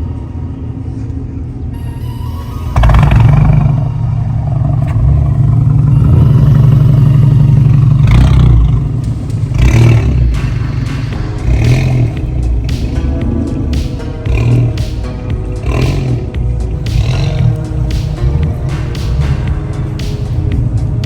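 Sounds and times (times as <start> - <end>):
car engine rumbling and revving: 2.8 - 21.0.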